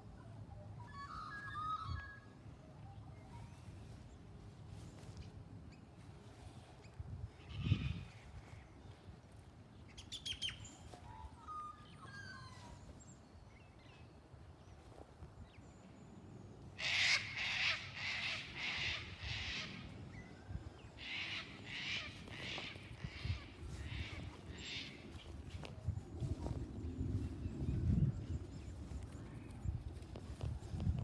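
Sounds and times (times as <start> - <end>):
bird harsh repeated calls: 16.8 - 19.9, 21.0 - 25.2.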